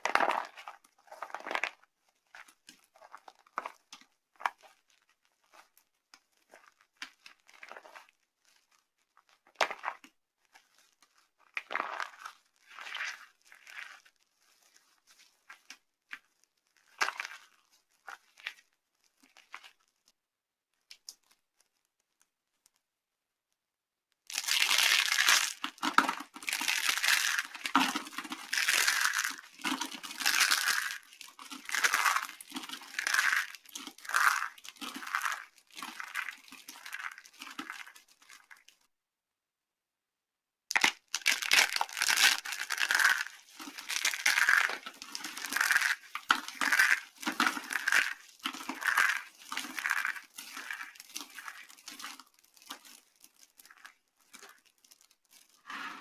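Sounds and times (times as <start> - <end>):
dry soap crunching: 0.0 - 1.8, 24.3 - 38.8, 40.7 - 56.0.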